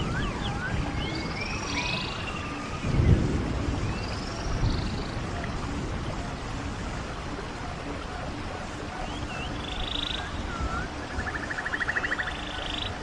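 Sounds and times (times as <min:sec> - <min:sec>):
swooping whistles: 0:00.0 - 0:05.1, 0:08.9 - 0:13.0
running stream: 0:00.0 - 0:13.0.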